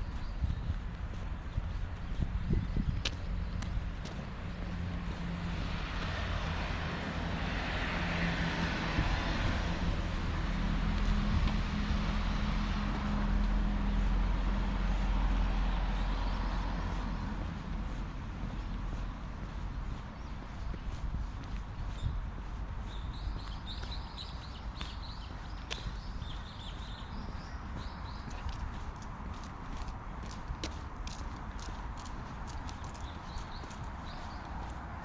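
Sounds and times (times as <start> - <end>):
footstep clicks: 0.1 - 5.3, 23.4 - 35.0
vehicle driving past: 4.7 - 18.2.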